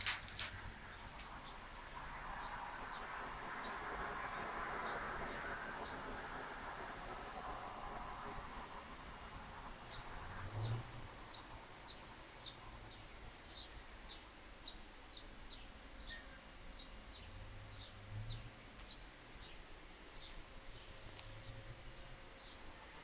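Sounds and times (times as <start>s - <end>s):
faint low hum: 0.0s - 23.0s
small bird chirping: 11.2s - 18.0s.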